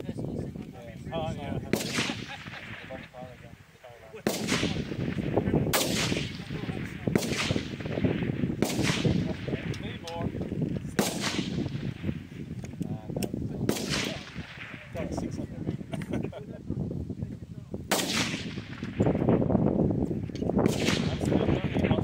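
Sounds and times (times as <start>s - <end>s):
wind buffeting microphone: 0.0s - 22.0s
rifle shots with echo: 1.6s - 3.5s, 4.1s - 10.1s, 10.9s - 12.4s, 13.6s - 15.1s, 17.9s - 19.4s, 20.6s - 22.0s.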